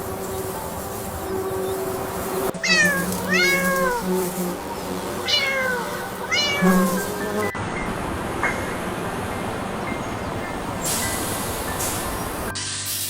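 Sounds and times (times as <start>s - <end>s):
cat meowing: 2.6s - 4.2s, 5.2s - 7.1s.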